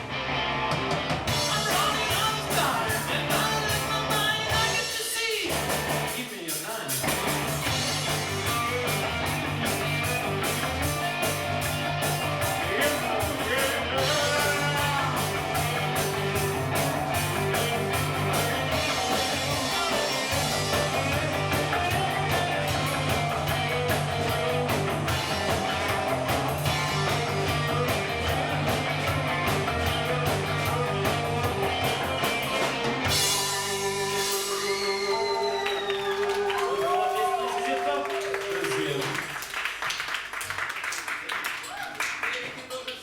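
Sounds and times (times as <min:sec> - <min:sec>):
rock band playing live: 0:00.0 - 0:36.4
audience applause: 0:34.4 - 0:43.0.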